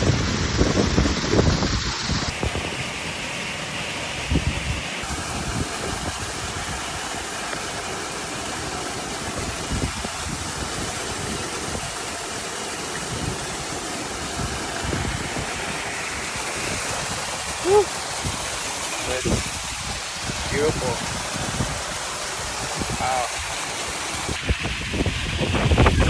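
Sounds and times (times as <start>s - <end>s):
waterfall pouring into pool: 0.0s - 26.0s
wind thumps on microphone: 24.2s - 26.0s.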